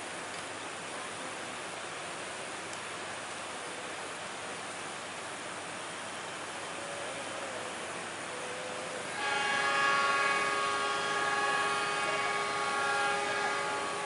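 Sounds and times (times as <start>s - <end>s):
locomotive horn chord: 9.1s - 14.0s.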